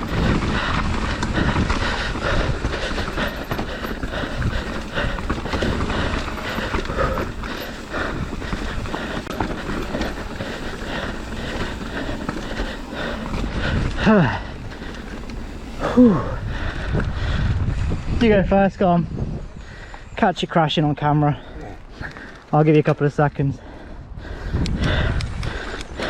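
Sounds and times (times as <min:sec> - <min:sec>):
bike chain and frame rattling: 0:00.0 - 0:18.0
bike tyres on dirt and stones: 0:00.0 - 0:26.0.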